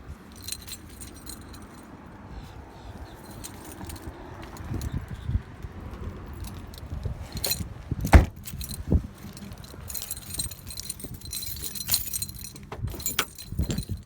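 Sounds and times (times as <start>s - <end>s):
small metal items jingling: 0.2s - 2.0s, 3.2s - 5.0s, 6.2s - 14.0s
solid thumps: 8.0s - 8.6s.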